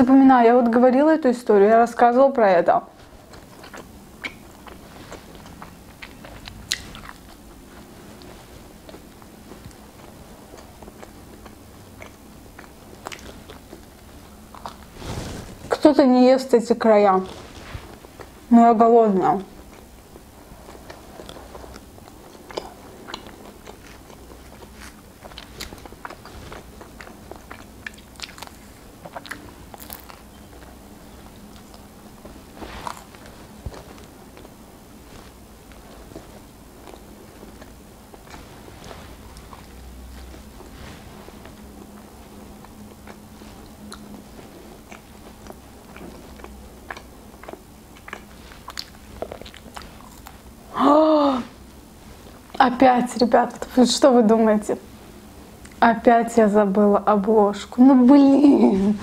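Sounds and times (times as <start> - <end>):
person chewing pizza crust: 3.0 - 15.8, 19.2 - 52.6
crisp mouth clicks: 3.4 - 7.3.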